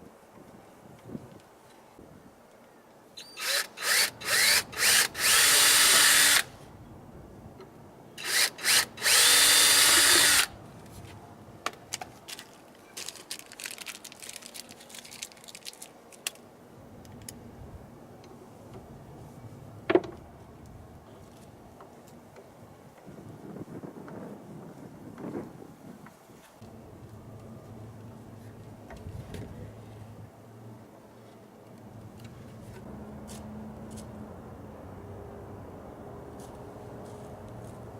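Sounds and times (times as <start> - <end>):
power drill whirring: 3.3 - 6.5, 8.2 - 10.5.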